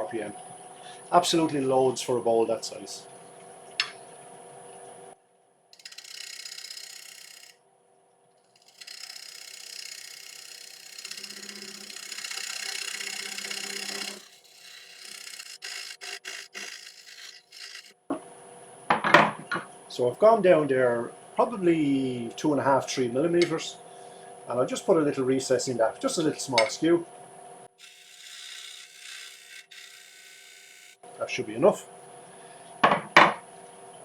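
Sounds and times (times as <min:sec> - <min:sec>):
faint lathe hum: 0:05.8 - 0:07.6, 0:08.5 - 0:34.0
parting tool scraping wood on lathe: 0:08.5 - 0:18.0, 0:27.8 - 0:31.0.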